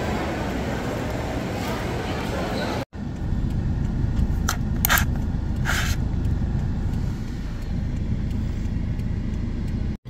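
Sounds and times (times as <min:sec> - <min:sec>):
steady low rumble: 0:02.9 - 0:10.0.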